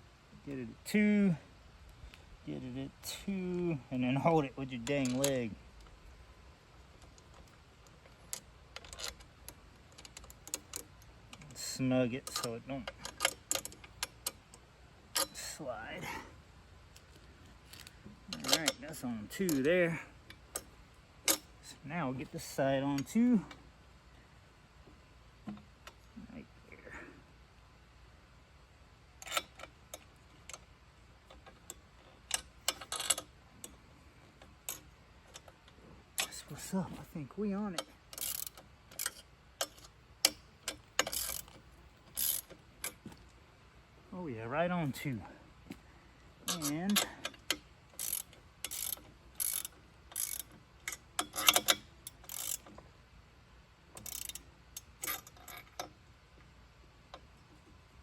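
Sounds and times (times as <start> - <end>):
metal clicking and scraping: 4.8 - 6.0, 6.9 - 15.6, 16.9 - 21.7, 29.2 - 43.1, 46.4 - 52.8, 53.9 - 56.0
sharp clicks and knocks of clamping: 46.4 - 52.8.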